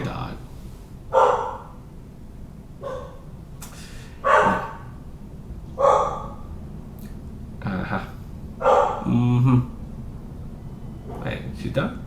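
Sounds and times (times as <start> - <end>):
dog barking: 1.1 - 1.8, 2.8 - 3.3, 4.2 - 5.0, 5.8 - 6.5, 8.6 - 9.1.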